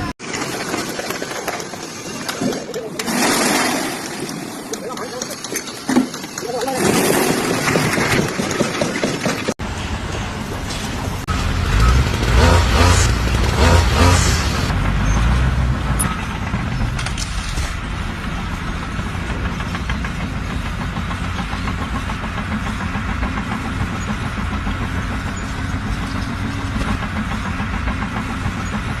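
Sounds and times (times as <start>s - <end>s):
engine pulsing rumble: 7.4s - 29.0s.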